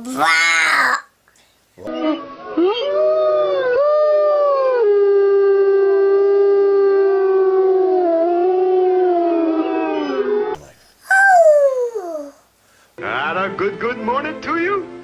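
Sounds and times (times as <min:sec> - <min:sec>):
toddler imitating wolf howl: 0:07.0 - 0:09.9, 0:11.0 - 0:12.4.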